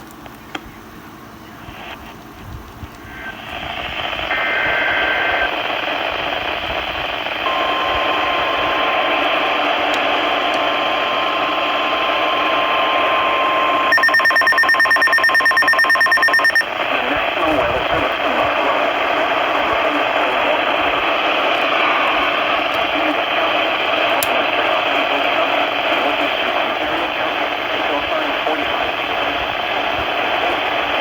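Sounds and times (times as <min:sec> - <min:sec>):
radio static: 0:00.3 - 0:31.0
steady warning alarm tone: 0:11.8 - 0:28.1
two-tone data burst: 0:12.5 - 0:31.0
pulsing electronic alarm beep: 0:13.9 - 0:16.7.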